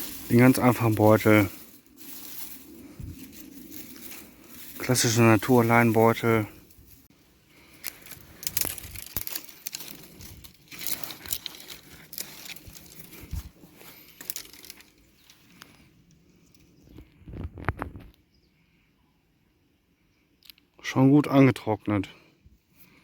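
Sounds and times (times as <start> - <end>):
dry twigs rustling and crackling: 0.0 - 18.2.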